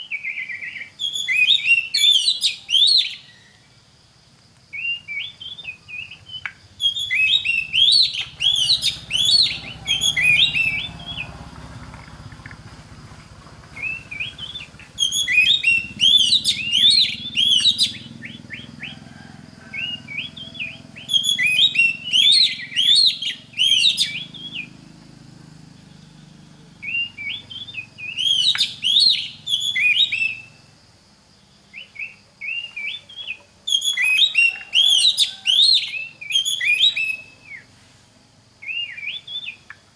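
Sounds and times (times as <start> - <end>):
bird whistling and chirping: 0.0 - 3.6, 4.7 - 11.3, 13.8 - 18.9, 19.7 - 24.8, 26.8 - 30.6, 31.7 - 37.7, 38.6 - 39.7.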